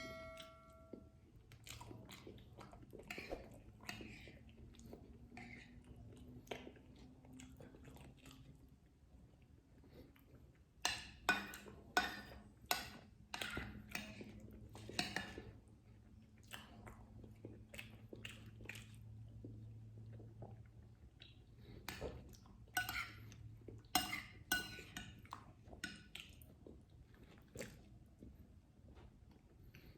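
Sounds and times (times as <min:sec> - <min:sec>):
person chewing: 0:01.4 - 0:08.4, 0:24.8 - 0:28.3.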